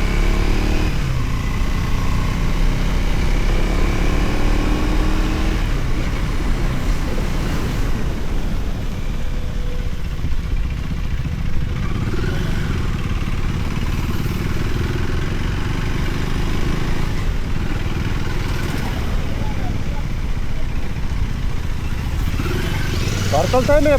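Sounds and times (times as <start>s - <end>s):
motorcycle engine rumbling: 0.0s - 23.9s.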